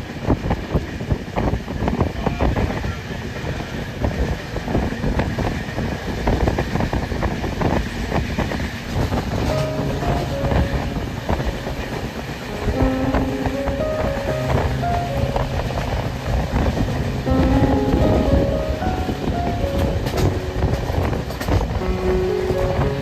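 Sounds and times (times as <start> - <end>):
train rumbling and clattering: 0.0 - 23.0
music with held notes: 9.4 - 23.0.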